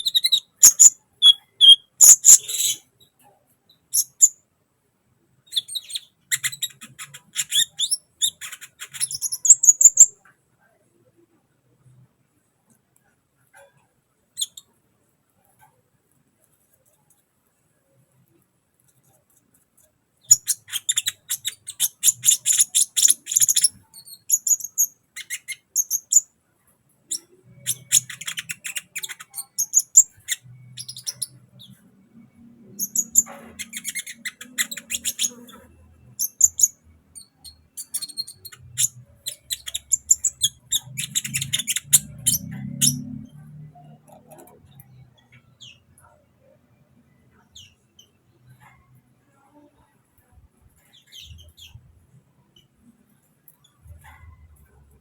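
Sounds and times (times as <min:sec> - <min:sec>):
bird chattering song: 0:00.0 - 0:02.9, 0:20.2 - 0:26.2, 0:27.1 - 0:31.8, 0:32.7 - 0:43.0.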